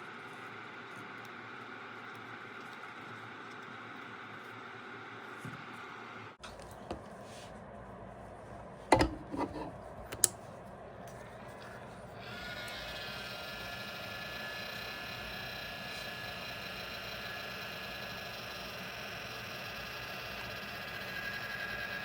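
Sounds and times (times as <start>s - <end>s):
tools knocking on bench: 8.9s - 9.6s
heat gun whining hum: 12.2s - 22.0s.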